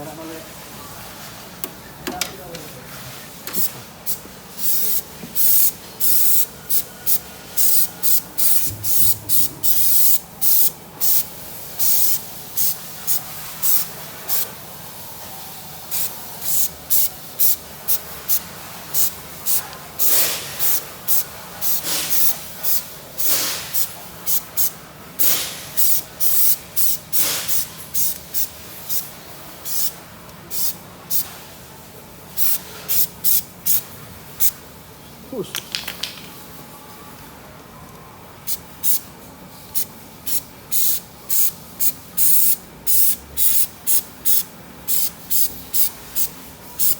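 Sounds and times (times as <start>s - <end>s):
spray paint hissing bursts: 3.5s - 15.0s, 15.6s - 31.4s, 32.3s - 34.6s, 38.4s - 39.1s, 39.7s - 46.9s.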